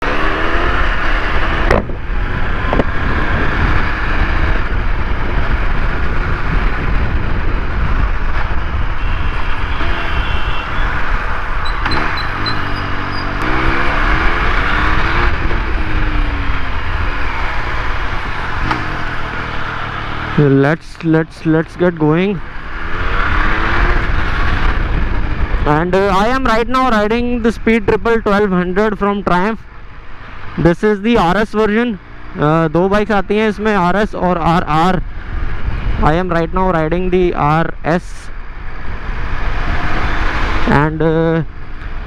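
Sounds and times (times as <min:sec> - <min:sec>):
motorcycle engine revving: 0:00.0 - 0:26.3, 0:38.3 - 0:42.0
road and wind noise: 0:00.0 - 0:42.0.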